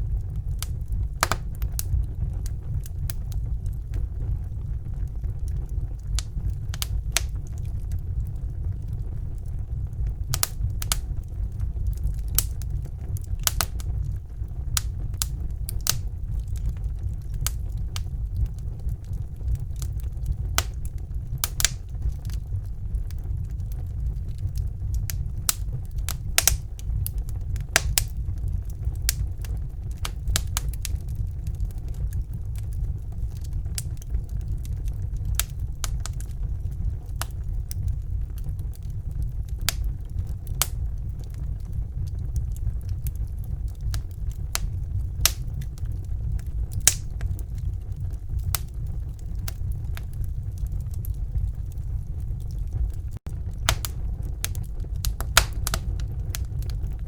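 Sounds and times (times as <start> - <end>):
fire crackling and popping: 0.0 - 57.0
low fire rumble: 0.0 - 57.0.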